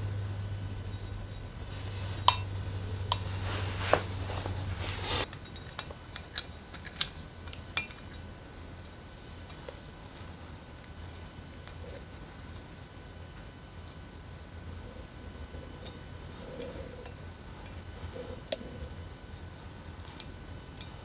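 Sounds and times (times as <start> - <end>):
low steady hum: 0.0 - 5.9.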